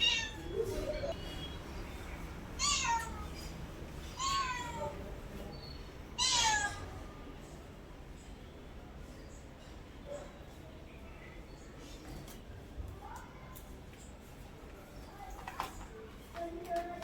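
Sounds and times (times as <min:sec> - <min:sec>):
cat meowing: 0:00.0 - 0:01.1, 0:02.6 - 0:03.5, 0:04.2 - 0:04.9, 0:06.2 - 0:06.9.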